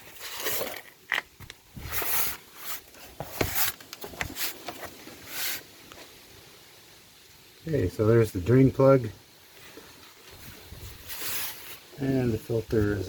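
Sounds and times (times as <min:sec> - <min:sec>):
scuffing and rustling: 0:01.7 - 0:06.1, 0:09.6 - 0:13.0
short hissy bursts: 0:01.8 - 0:04.6, 0:05.2 - 0:06.4, 0:09.2 - 0:13.0.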